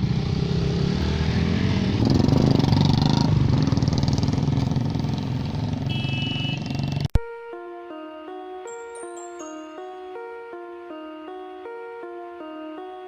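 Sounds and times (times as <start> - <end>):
motorcycle engine running: 0.0 - 0.9, 2.0 - 7.2
mallet percussion music: 8.7 - 10.3.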